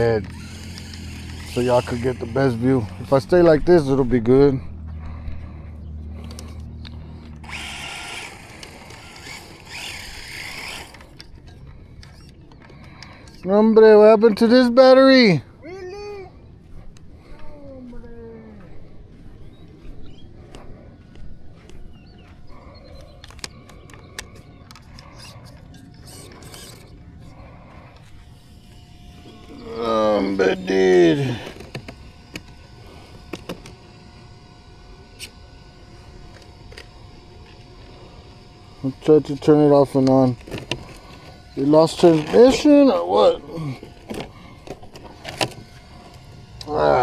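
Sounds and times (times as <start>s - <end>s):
toy truck electric motor whining: 0.0s - 3.5s, 7.2s - 13.5s, 24.1s - 47.0s.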